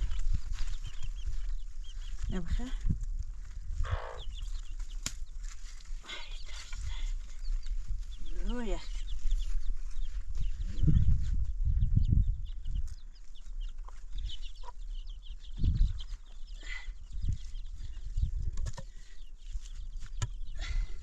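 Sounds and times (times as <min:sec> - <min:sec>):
chickens clucking: 0:03.7 - 0:20.4.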